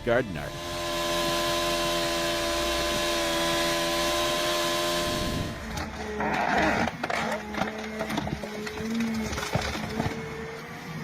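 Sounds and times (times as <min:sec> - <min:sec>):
steady hum: 0:00.0 - 0:05.8.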